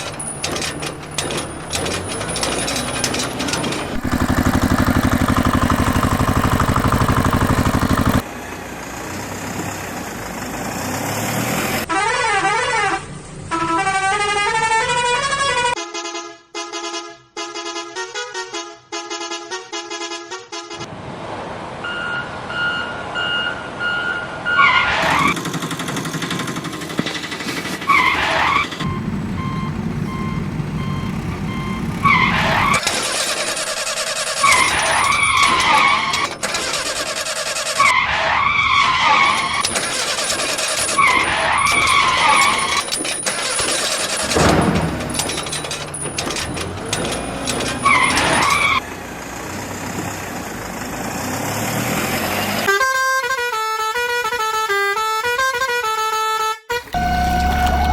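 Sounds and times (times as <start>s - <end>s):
engine running: 0.0s - 11.8s, 25.0s - 38.0s, 39.0s - 52.7s, 56.9s - 57.9s
screeching pitch sweeps: 57.0s - 57.9s.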